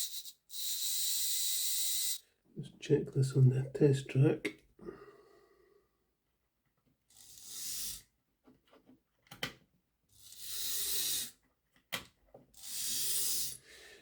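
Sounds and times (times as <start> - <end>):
small electric motor spinning: 0.0 - 2.2, 7.1 - 8.0, 10.2 - 11.4, 12.6 - 13.6.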